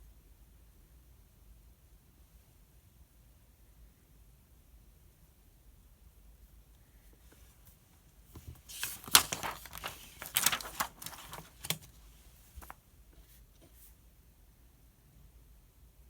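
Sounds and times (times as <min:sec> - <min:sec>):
book page turning: 0:08.4 - 0:12.8.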